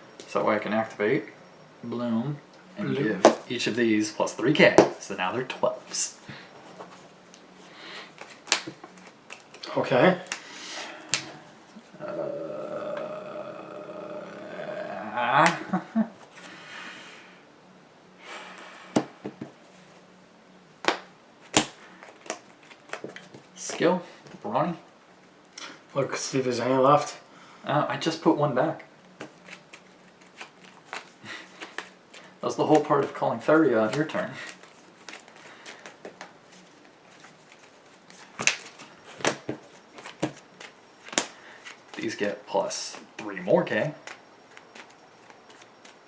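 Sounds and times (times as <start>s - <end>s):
cards rustling: 5.6s - 11.9s, 29.1s - 46.0s
card slaps and clicks: 8.2s - 9.6s.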